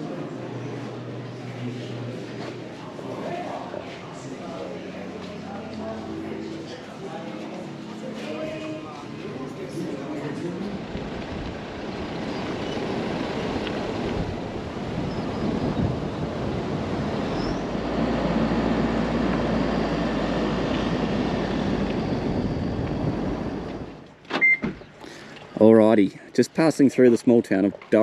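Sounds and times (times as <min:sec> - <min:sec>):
road and wind noise: 0:09.1 - 0:24.8
low rumble: 0:13.0 - 0:24.1.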